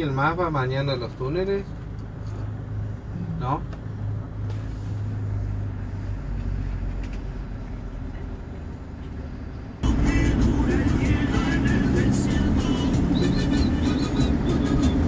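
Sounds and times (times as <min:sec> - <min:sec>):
vehicle engine and road noise: 0:00.0 - 0:15.0
loud music: 0:09.8 - 0:15.0.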